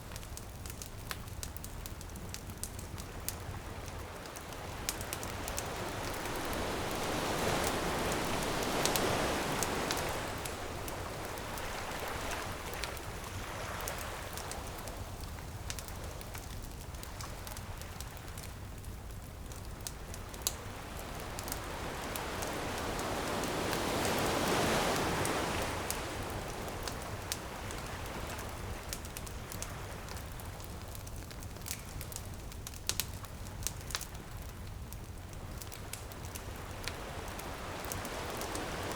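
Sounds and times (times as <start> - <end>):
wood bonfire crackling: 0.0 - 38.9
ocean waves breaking on beach: 3.6 - 17.4, 19.6 - 30.7, 36.3 - 38.9.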